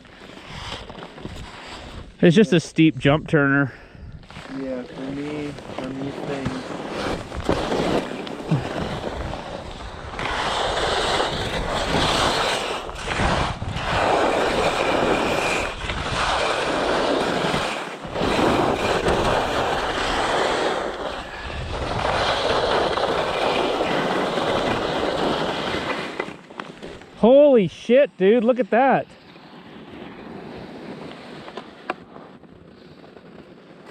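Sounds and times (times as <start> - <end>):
skis scraping on snow: 0.0 - 33.9
wind on microphone: 2.8 - 25.9.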